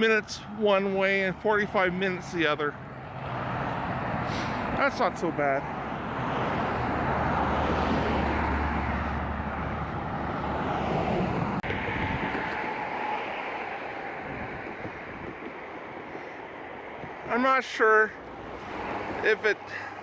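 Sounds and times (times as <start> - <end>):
vehicle tyre and engine rumble: 0.0 - 20.0
wind buffeting microphone: 5.7 - 17.4.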